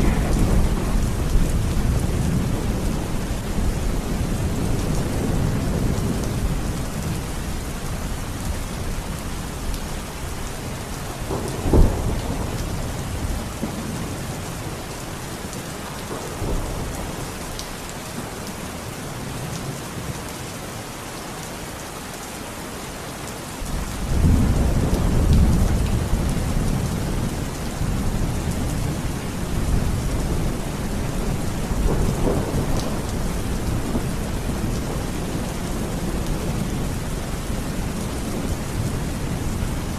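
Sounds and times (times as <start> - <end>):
thunder crack: 0.0 - 3.5
low thunder rumble: 0.0 - 7.3, 11.1 - 14.1
steady rain falling: 0.0 - 39.9.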